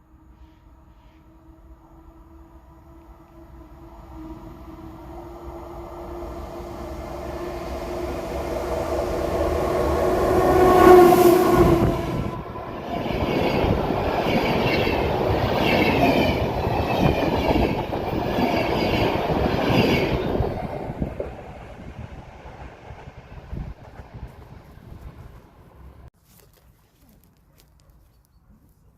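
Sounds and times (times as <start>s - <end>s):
long steady horn tone: 0.0s - 12.8s
train wheels clattering on rails: 12.8s - 21.6s.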